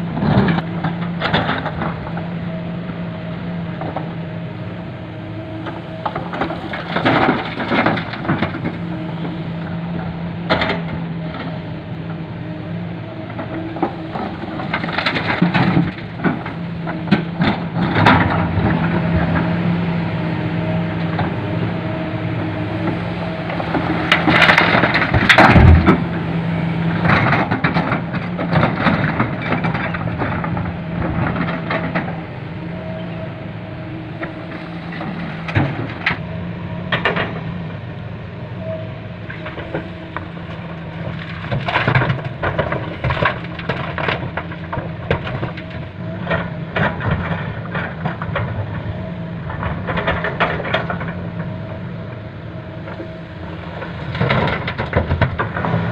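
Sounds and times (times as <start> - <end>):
diesel truck engine running: 0.0 - 55.9
knocks and clatters: 40.5 - 48.6, 54.1 - 55.9.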